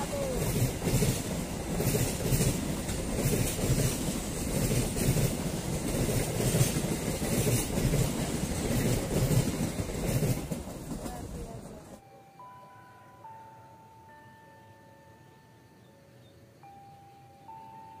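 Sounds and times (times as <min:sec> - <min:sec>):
train wheels clattering over rails: 0:00.0 - 0:12.0.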